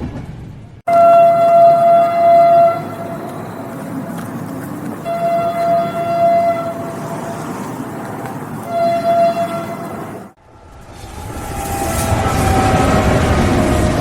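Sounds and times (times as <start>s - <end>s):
passing train rumble: 0.0s - 14.0s
train horn blasts: 0.9s - 3.3s, 5.0s - 7.5s, 8.6s - 10.0s.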